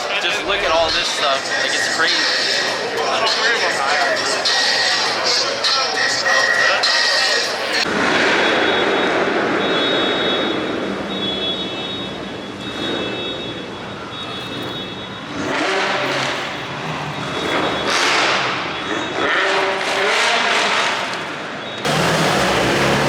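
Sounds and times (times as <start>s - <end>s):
car engine revving: 14.1s - 23.0s.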